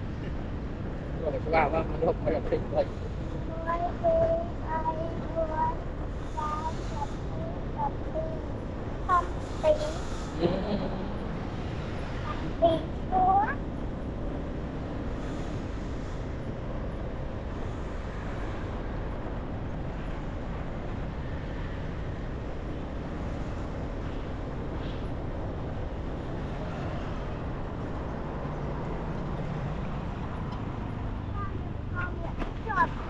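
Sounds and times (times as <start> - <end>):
road and traffic noise: 0.0 - 33.0.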